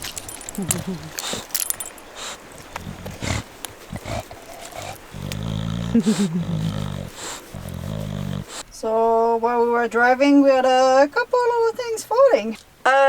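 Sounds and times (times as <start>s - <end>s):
cat growling: 0.6s - 8.7s.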